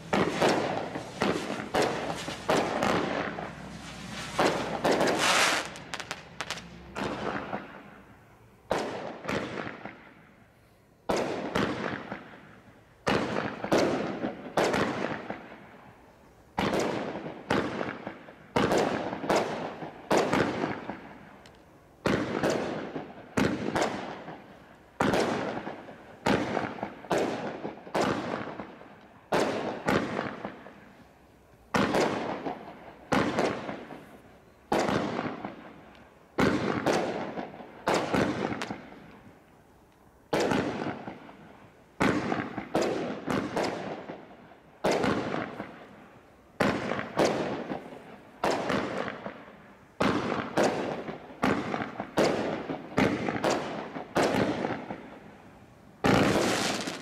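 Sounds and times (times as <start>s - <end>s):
aerial fireworks bursting: 0.0s - 10.2s, 31.7s - 35.8s, 56.0s - 57.0s.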